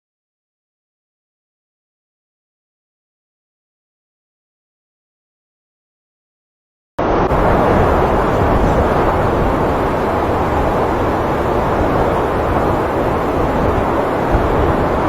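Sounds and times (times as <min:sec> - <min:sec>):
blizzard wind on microphone: 0:07.0 - 0:15.0.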